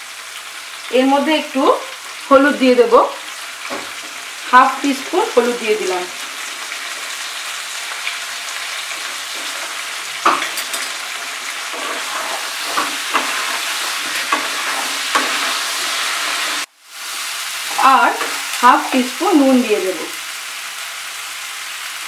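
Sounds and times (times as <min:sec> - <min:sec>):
vegetables sizzling in oil: 0:00.0 - 0:22.0
spatula scraping and knocking pan: 0:03.6 - 0:04.4, 0:06.1 - 0:16.7.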